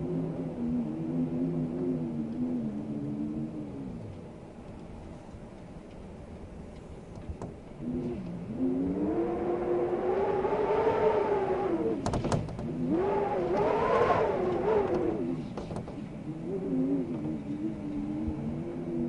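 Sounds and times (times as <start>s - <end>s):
wind howling in gusts: 0.0s - 19.0s.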